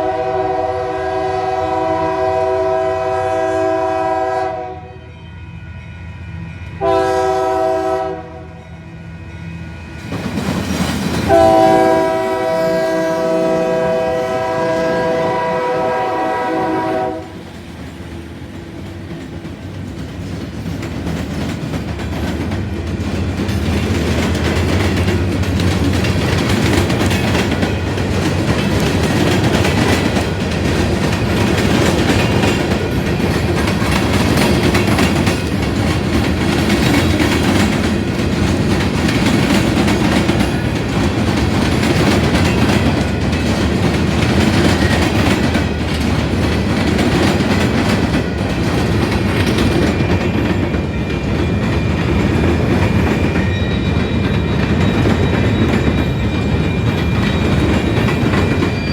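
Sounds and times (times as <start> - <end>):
train rumbling past: 0.0 - 58.9
wheels clacking over rail joints: 18.6 - 58.9.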